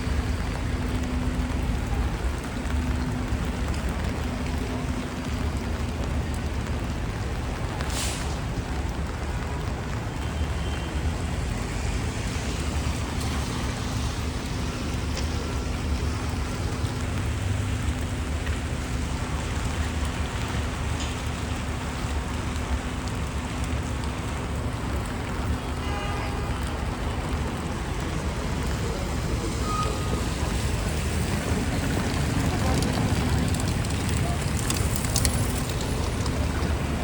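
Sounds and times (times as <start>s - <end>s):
rain on a street: 0.0s - 37.0s
traffic rumble: 0.0s - 37.0s.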